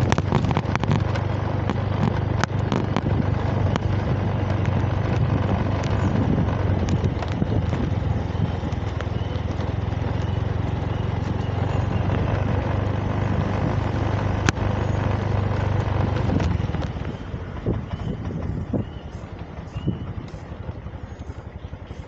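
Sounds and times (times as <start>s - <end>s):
vehicle engine humming: 0.0s - 22.0s
faint bird chirps: 17.0s - 22.0s.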